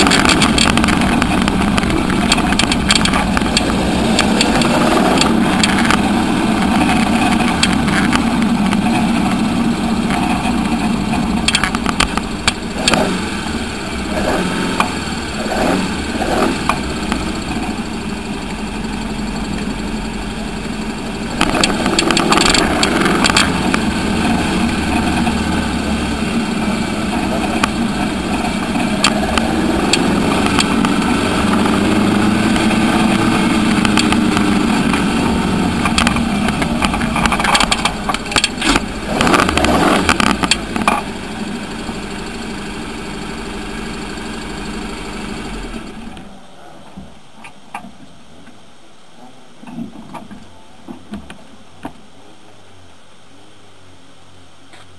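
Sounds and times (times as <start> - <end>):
sharp clicks and knocks: 0.0 - 9.4, 10.0 - 13.2, 21.3 - 25.5, 27.1 - 41.2
car engine at low revs: 0.0 - 46.6.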